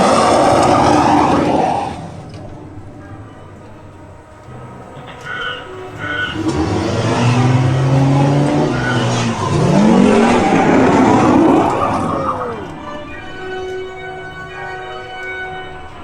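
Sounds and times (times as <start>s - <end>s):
vehicle engines revving: 0.0s - 13.8s
loud rushing noise: 5.6s - 13.1s.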